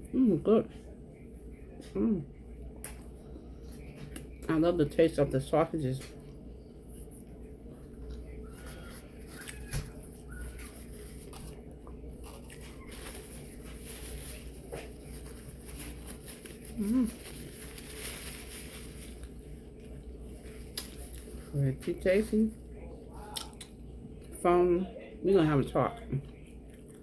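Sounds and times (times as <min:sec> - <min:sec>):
chewing: 0:06.1 - 0:21.6, 0:23.2 - 0:24.4, 0:25.9 - 0:27.0
paper wrapper crinkling: 0:06.9 - 0:22.7.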